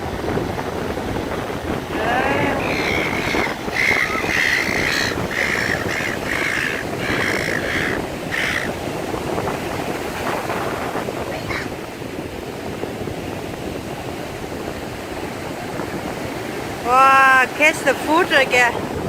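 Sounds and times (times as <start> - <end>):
wind noise on microphone: 0.0 - 19.0
gulls calling: 1.8 - 9.7, 10.3 - 11.9.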